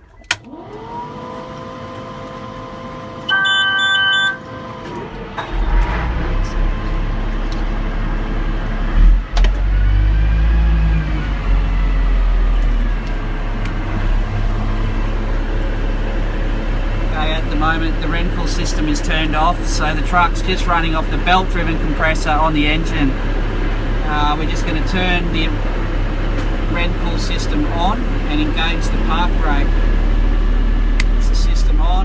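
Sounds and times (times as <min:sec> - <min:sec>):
diesel engine rumbling: 0:00.0 - 0:32.0
warning horn: 0:03.2 - 0:04.6
electric whine: 0:03.2 - 0:04.8.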